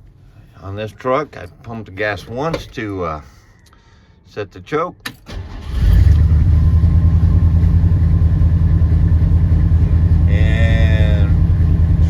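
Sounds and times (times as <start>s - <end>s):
truck engine starting and idling: 5.2s - 12.0s.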